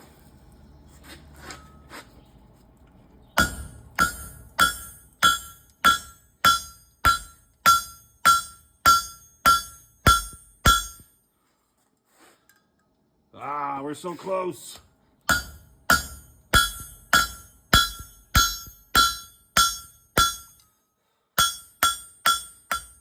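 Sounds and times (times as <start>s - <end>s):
hammer striking steel on anvil: 3.4s - 11.2s, 15.3s - 20.8s, 21.4s - 23.0s.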